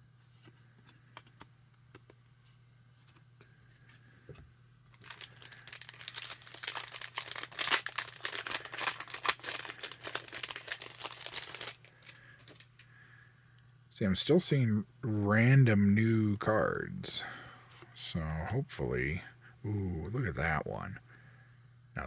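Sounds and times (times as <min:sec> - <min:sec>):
wrapper tearing and crinkling: 0:04.9 - 0:12.7.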